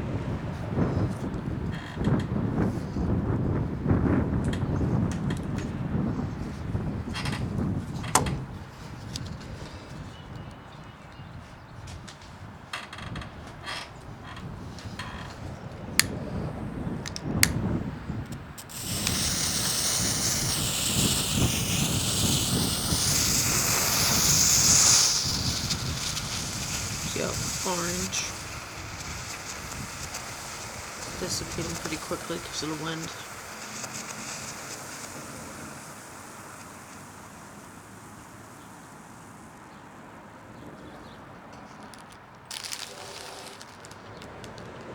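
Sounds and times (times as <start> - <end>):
wind rumble on microphone: 0.0 - 39.8
smoke ball hissing: 17.2 - 41.2, 42.0 - 44.9
sharp clicks: 18.3 - 37.4.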